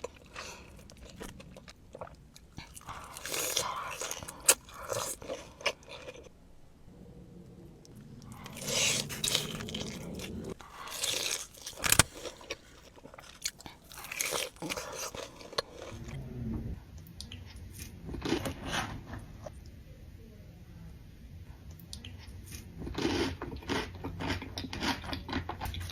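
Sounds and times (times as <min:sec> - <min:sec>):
close-up chewing and biting: 0:00.0 - 0:06.4, 0:07.4 - 0:16.2
sharp crack: 0:10.9 - 0:12.4.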